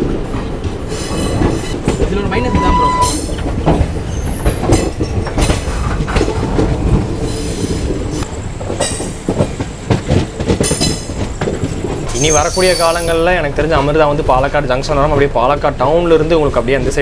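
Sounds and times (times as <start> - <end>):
train coach rumble: 0.0 - 17.0
wheel squeal: 2.3 - 3.4, 12.1 - 13.2.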